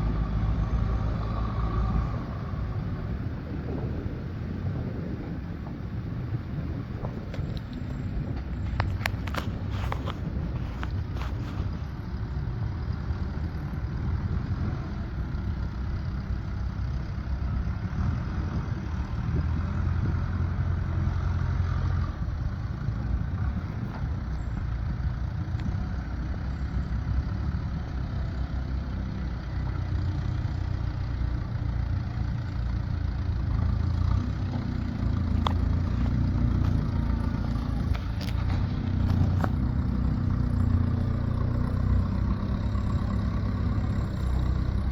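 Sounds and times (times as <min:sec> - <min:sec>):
engine running low: 0:00.0 - 0:44.9.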